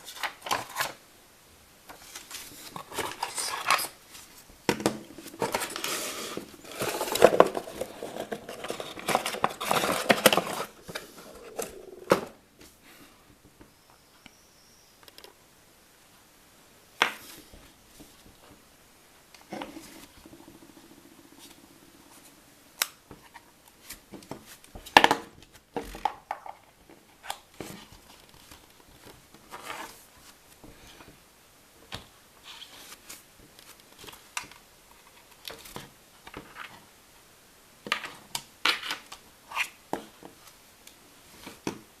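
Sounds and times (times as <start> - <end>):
handling clicks and scrapes: 5.0 - 12.3.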